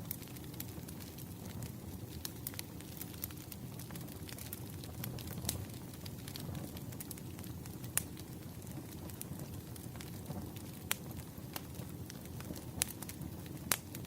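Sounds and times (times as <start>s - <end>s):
sharp fire pops: 0.0s - 14.0s
wood fire crackling: 0.0s - 14.0s.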